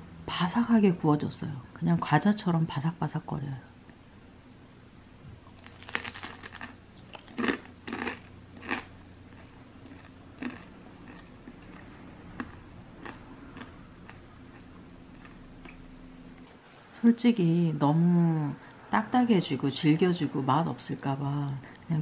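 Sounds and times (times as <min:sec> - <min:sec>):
crunching crisp dumpling: 0:05.5 - 0:15.8.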